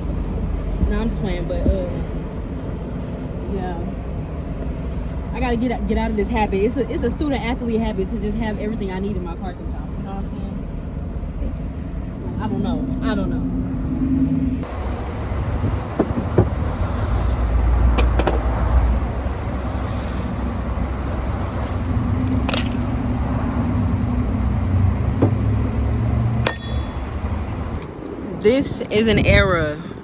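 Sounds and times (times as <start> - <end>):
low vehicle rumble: 0.0 - 30.0
sharp clicks and knocks: 15.6 - 16.6, 17.8 - 18.6, 21.6 - 23.1, 25.1 - 25.7.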